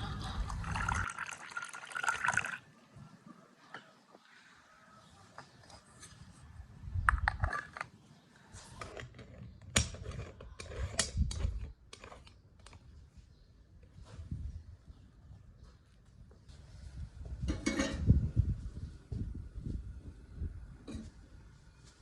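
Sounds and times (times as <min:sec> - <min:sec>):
cooking utensils clicking and knocking: 0:17.5 - 0:18.1.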